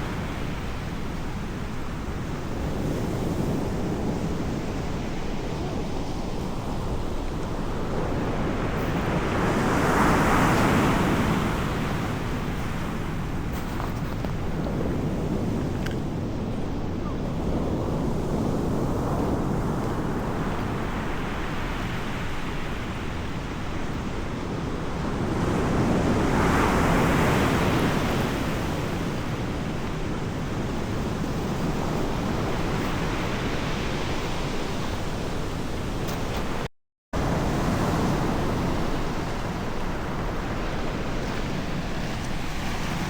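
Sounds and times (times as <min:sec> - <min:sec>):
wind: 0:00.0 - 0:43.0.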